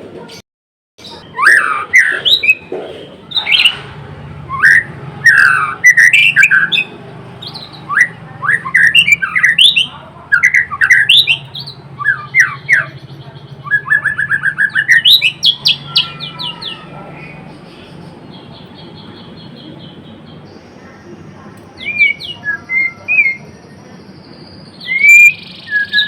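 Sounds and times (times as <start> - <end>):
bird singing whistled phrases: 1.2 - 2.7, 4.5 - 13.0, 13.6 - 17.4, 21.8 - 26.0.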